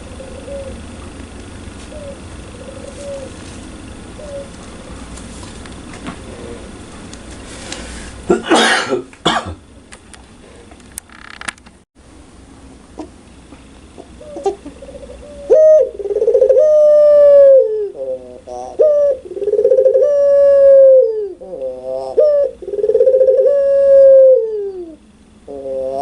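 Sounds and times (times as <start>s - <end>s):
dove cooing loudly: 0.0s - 1.0s, 1.9s - 3.4s, 4.1s - 5.0s, 6.2s - 6.8s, 14.0s - 26.0s.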